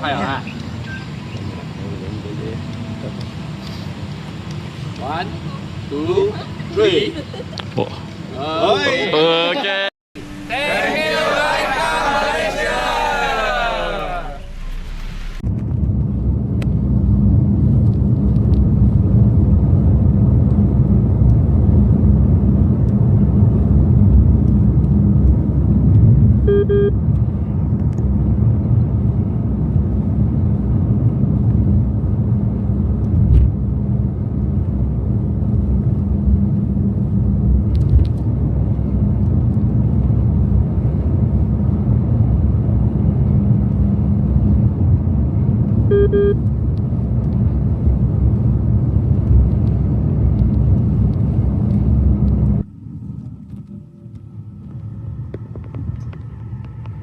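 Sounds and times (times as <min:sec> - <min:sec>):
car driving on road: 0:14.4 - 0:23.6
short electronic beep: 0:45.9 - 0:46.4.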